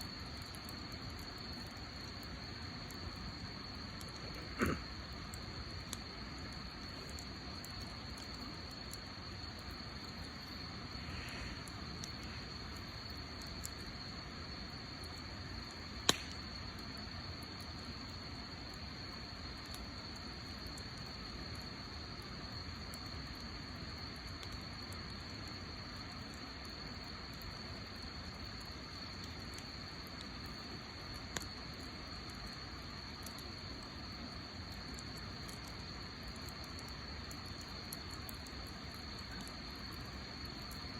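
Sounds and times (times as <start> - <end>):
campfire crackling and hissing: 0.0 - 40.9
sharp fire pop: 16.0 - 16.4.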